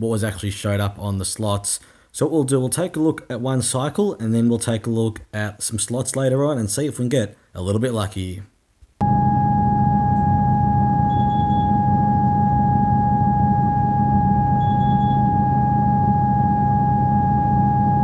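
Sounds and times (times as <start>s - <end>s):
electrical whine: 9.0s - 18.0s
low hum: 9.0s - 18.0s
short high chirp: 14.6s - 15.4s.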